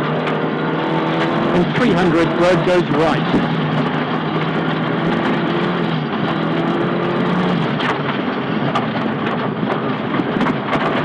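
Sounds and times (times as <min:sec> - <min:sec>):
car engine running hard: 0:00.0 - 0:11.0
road noise: 0:00.0 - 0:11.0
sharp knocks: 0:03.2 - 0:03.6.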